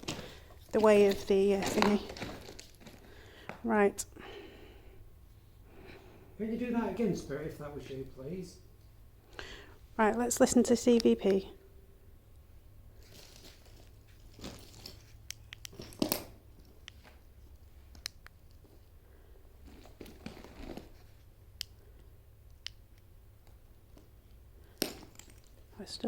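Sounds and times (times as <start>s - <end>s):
faint rustles: 0.0s - 10.0s, 12.7s - 22.2s
steady low hum: 0.0s - 26.0s
sharp clicks: 15.2s - 16.2s, 17.9s - 18.6s, 22.5s - 23.6s.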